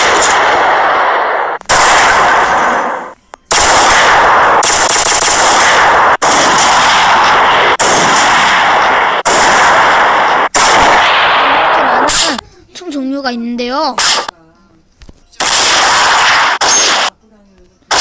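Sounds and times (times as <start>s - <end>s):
automatic gunfire bursts: 3.5s - 12.2s, 15.4s - 17.1s.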